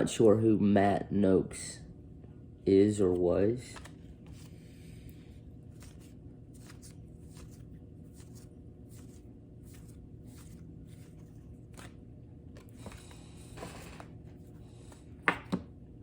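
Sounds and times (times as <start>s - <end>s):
low steady hum: 0.0s - 16.0s
cards brushing softly: 3.0s - 12.0s.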